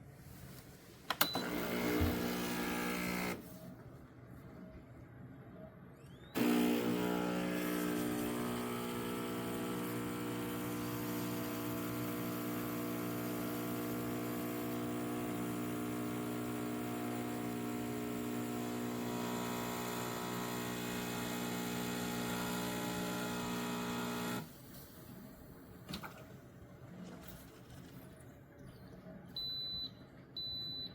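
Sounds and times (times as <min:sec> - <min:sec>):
espresso machine pump humming: 0:01.4 - 0:03.4, 0:06.4 - 0:24.5.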